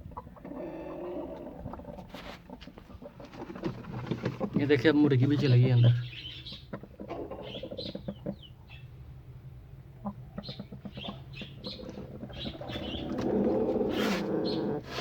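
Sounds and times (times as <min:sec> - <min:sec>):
chickens clucking: 0:00.0 - 0:09.1, 0:09.7 - 0:15.0.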